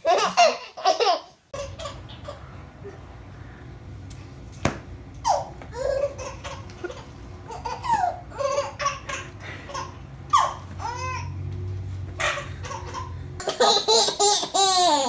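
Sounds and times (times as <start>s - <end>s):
baby laughing: 0.0s - 3.0s, 5.2s - 11.4s, 12.2s - 15.0s.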